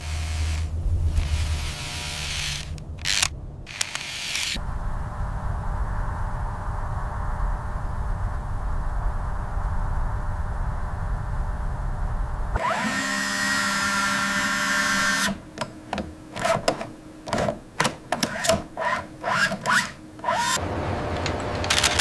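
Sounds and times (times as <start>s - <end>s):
power tool whirring: 0.0s - 4.6s, 12.6s - 17.5s, 18.1s - 22.0s
low mechanical rumble: 0.0s - 12.8s, 18.7s - 22.0s
irregular clicks and knocks: 15.5s - 18.7s.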